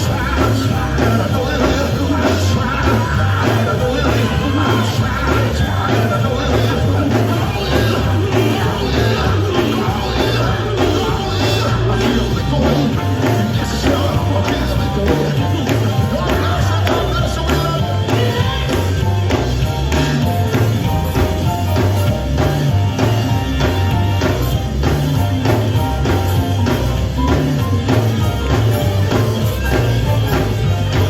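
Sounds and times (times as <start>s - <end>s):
person singing: 0.0s - 21.9s
bass: 0.0s - 31.0s
drums: 0.0s - 31.0s
gospel band playing: 0.0s - 31.0s.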